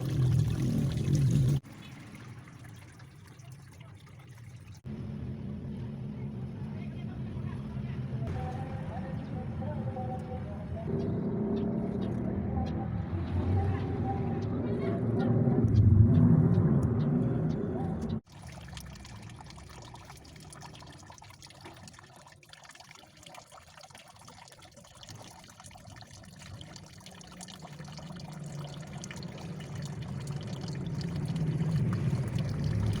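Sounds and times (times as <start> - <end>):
water trickling and splashing: 0.0 - 4.9, 17.5 - 33.0
low rumble: 4.9 - 18.2.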